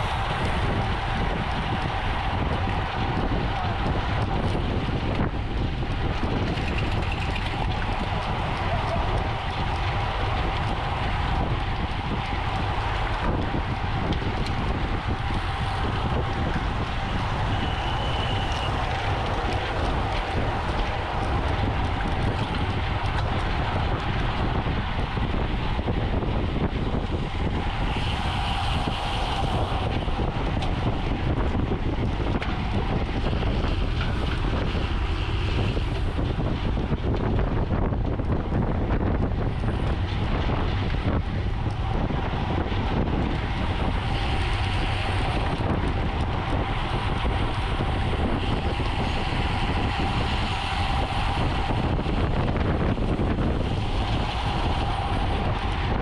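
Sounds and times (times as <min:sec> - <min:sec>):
bicycle tyre noise: 0:00.0 - 0:56.0
wind rushing over microphone: 0:00.0 - 0:56.0.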